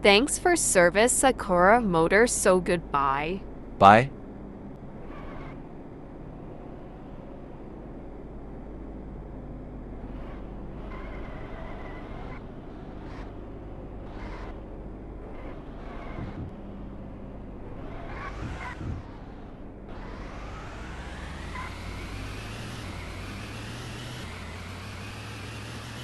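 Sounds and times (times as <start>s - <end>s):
car whine rising in pitch: 3.9s - 26.0s
car road rumble: 10.1s - 26.0s.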